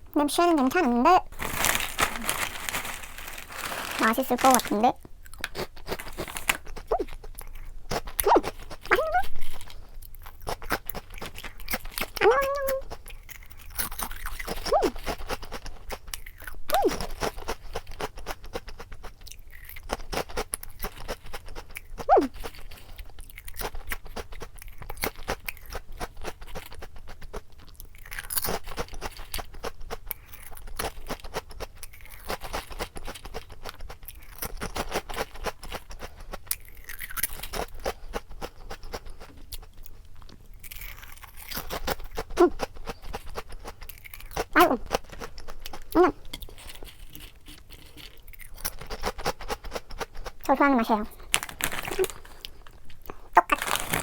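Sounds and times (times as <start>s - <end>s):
crunching and chewing snack: 0.5s - 54.0s.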